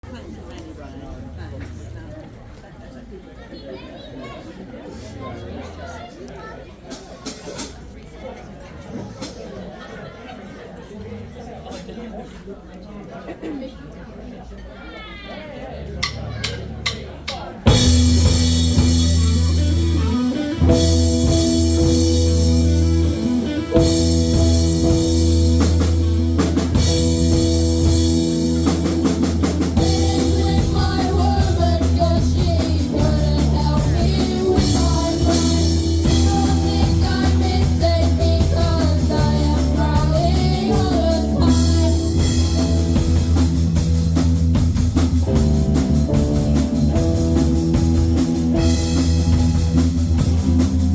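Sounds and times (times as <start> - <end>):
drums: 6.7 - 8.1, 8.8 - 9.8, 11.6 - 12.1, 15.8 - 50.9
bass guitar: 15.8 - 50.9
electric guitar: 17.7 - 50.9
person singing: 27.9 - 43.0.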